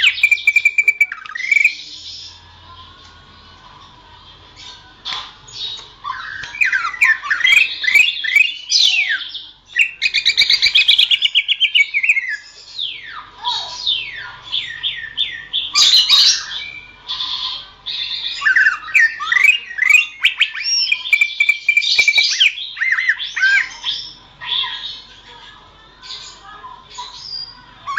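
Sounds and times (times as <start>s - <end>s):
bird singing whistles and trills: 0.0s - 2.4s, 5.6s - 17.0s, 17.9s - 24.9s.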